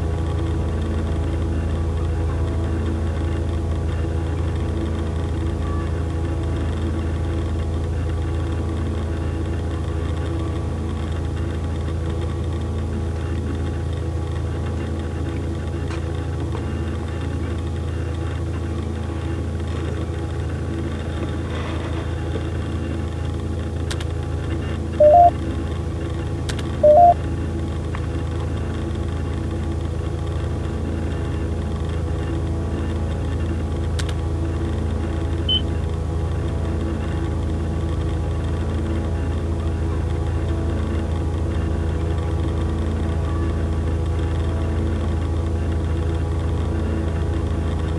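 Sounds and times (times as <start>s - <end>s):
low electronic drone: 0.0s - 47.9s
faint repeating pulse: 25.0s - 25.3s, 26.8s - 27.2s
short beeps: 25.0s - 25.3s, 26.8s - 27.2s.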